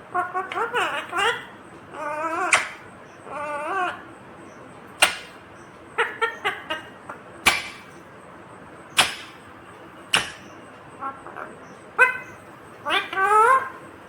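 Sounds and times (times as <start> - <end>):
parakeet screeching: 0.2 - 4.0, 10.2 - 13.8
parakeet chirps: 0.2 - 6.9, 10.1 - 13.9.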